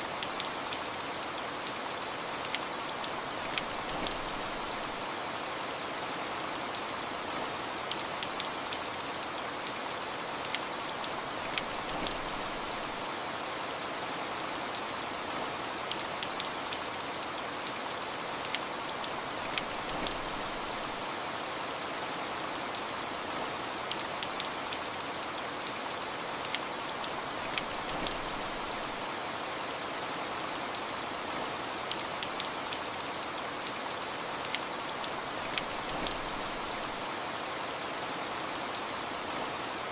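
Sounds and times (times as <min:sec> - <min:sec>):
rain falling: 0:00.0 - 0:39.9
raindrops pattering on a surface: 0:00.2 - 0:05.4, 0:06.8 - 0:13.1, 0:14.7 - 0:21.1, 0:22.8 - 0:29.8, 0:30.8 - 0:37.8.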